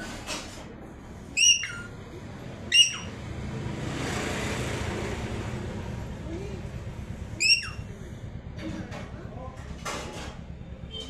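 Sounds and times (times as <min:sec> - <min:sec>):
parrot whistling: 0:01.4 - 0:02.0, 0:02.7 - 0:03.2, 0:07.4 - 0:07.8.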